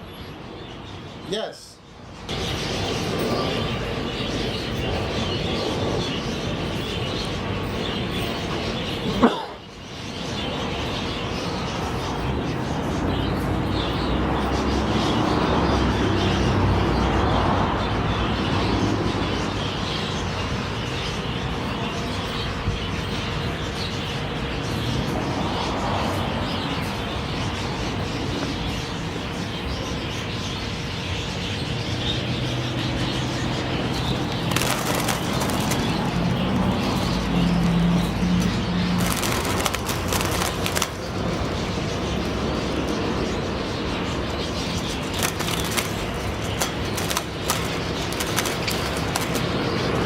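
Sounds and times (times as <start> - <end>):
parakeets chattering and chirping: 0.0 - 50.0
budgerigars chattering: 26.4 - 50.0
wings flapping: 34.0 - 37.3, 38.3 - 41.6, 44.8 - 50.0.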